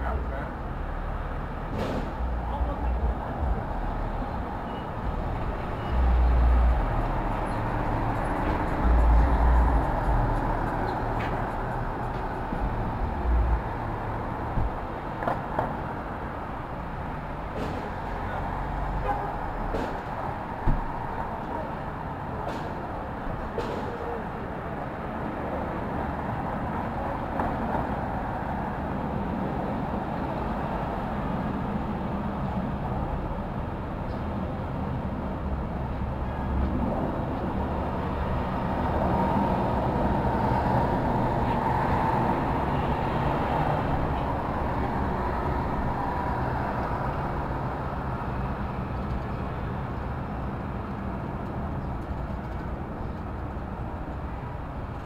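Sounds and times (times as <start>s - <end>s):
heavy vehicle passing: 0.0s - 15.2s
vehicles passing: 0.0s - 55.0s.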